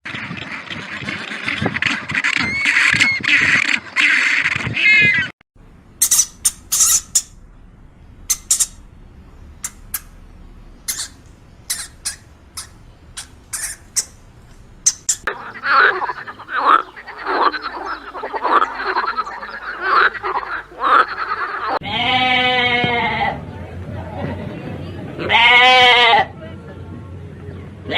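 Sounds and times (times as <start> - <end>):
chorus of animal cries: 2.2 - 5.3, 10.9 - 14.2, 14.9 - 23.4, 25.2 - 26.3
sharp high chirps: 6.0 - 7.4, 8.2 - 8.9, 9.6 - 10.2, 10.8 - 15.3.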